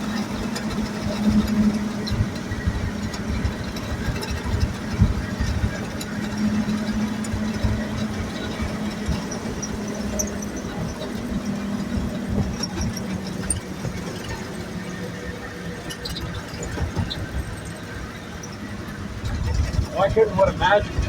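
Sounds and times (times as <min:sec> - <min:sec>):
truck engine whine: 0:00.0 - 0:21.0
rattles and knocks: 0:00.1 - 0:15.1, 0:15.7 - 0:17.9, 0:18.5 - 0:21.0.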